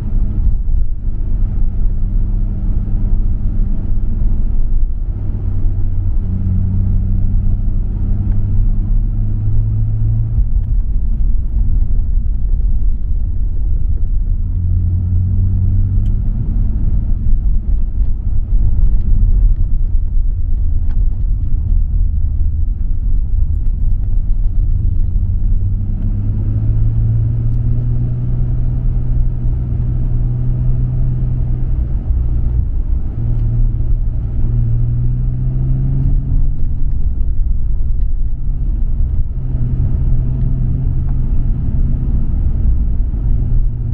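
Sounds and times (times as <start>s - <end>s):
road rumble: 0.0s - 43.9s
car engine revving: 20.5s - 43.9s.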